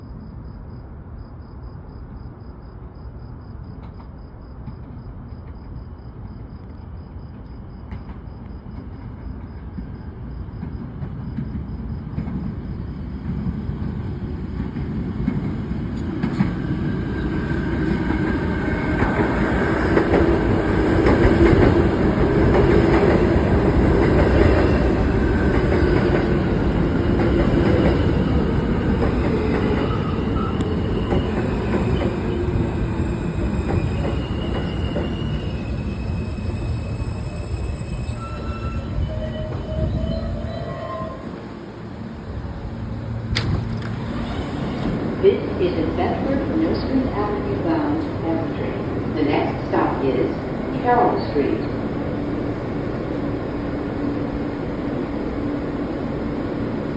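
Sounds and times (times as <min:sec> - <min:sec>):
train wheels rumbling on rails: 0:07.0 - 0:56.9
wheel and brake squeal: 0:29.8 - 0:41.4.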